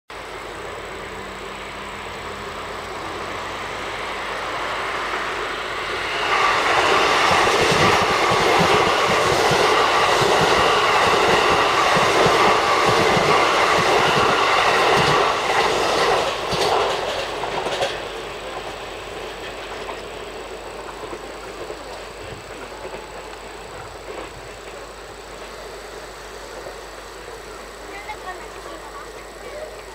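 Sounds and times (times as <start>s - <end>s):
electric train running past: 0.1s - 29.9s
wheels clacking over rail joints: 6.2s - 25.6s.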